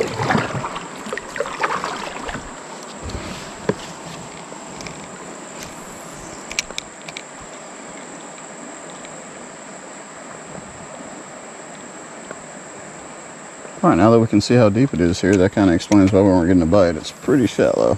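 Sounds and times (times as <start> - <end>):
creek water flowing: 0.0 - 17.9
insects droning: 0.0 - 17.9.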